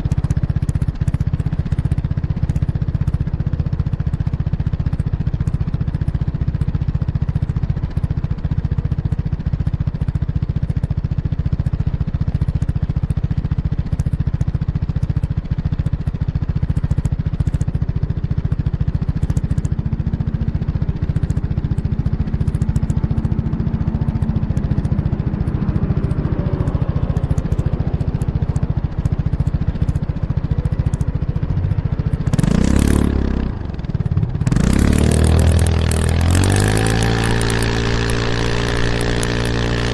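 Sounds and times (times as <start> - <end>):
scooter engine exhaust note: 0.0 - 39.9.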